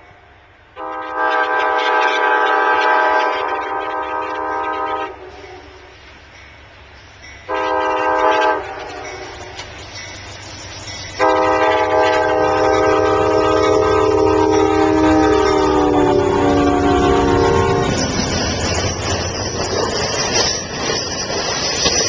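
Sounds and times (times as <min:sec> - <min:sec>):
train horn blowing: 0:00.8 - 0:06.0, 0:07.5 - 0:09.6, 0:11.2 - 0:18.1
rush and clatter of train cars: 0:00.8 - 0:22.0.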